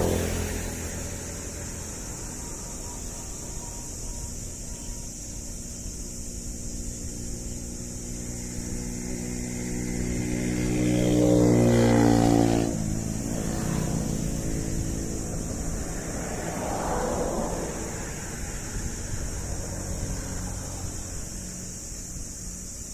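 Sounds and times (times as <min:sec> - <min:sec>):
steady rumble: 0:00.0 - 0:22.9
vehicle engine: 0:00.0 - 0:22.9.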